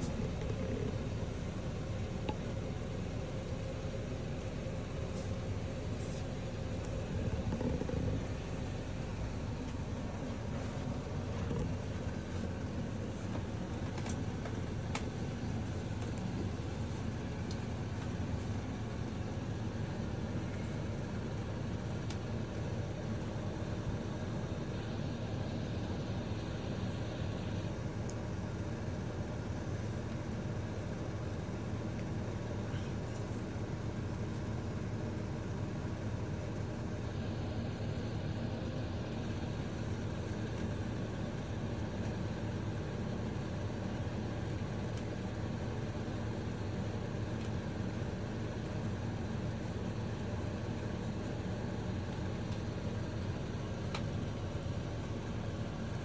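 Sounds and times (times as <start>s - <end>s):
steady low rumble: 0.0s - 24.2s.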